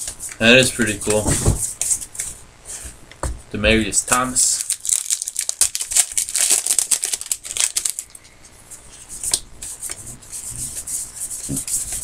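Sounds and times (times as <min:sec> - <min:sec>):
cards rustling: 0:04.4 - 0:08.2
wrappers crinkling: 0:04.4 - 0:08.2.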